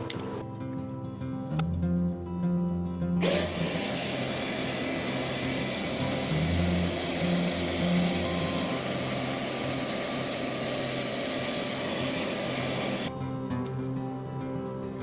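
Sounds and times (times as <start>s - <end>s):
vacuum running: 0.0s - 0.4s, 3.2s - 13.7s.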